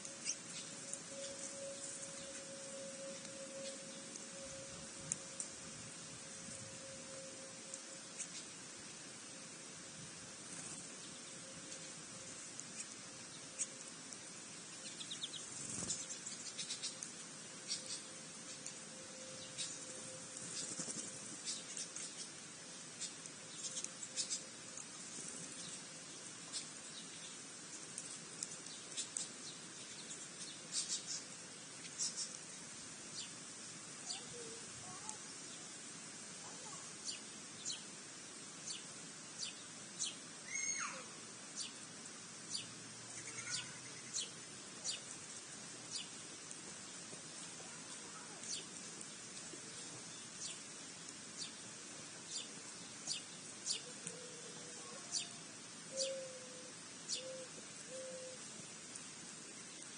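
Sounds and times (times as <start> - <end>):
birds chirping: 0.0 - 5.4, 10.6 - 33.4, 42.5 - 58.4
steady background hiss: 0.0 - 59.9.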